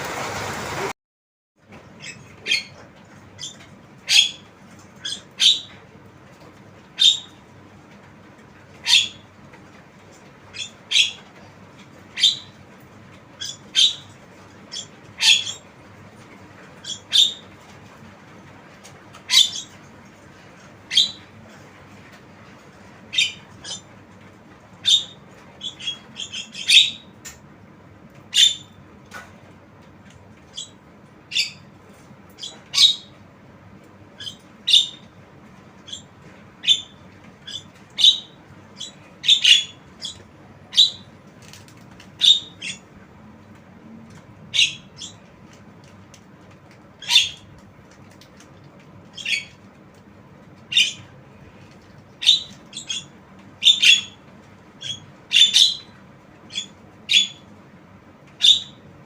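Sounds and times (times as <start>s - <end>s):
bird squawking: 2.0s - 2.8s, 3.4s - 4.4s, 8.8s - 9.2s, 12.2s - 12.5s, 13.4s - 14.1s, 14.7s - 15.6s, 16.8s - 17.5s, 19.3s - 19.7s, 23.1s - 23.9s, 24.8s - 27.0s, 28.3s - 28.7s, 32.4s - 33.1s, 34.2s - 35.1s, 35.9s - 41.1s, 42.2s - 42.8s, 47.0s - 47.5s, 49.1s - 49.6s, 52.2s - 54.2s, 54.8s - 55.9s, 58.4s - 58.8s.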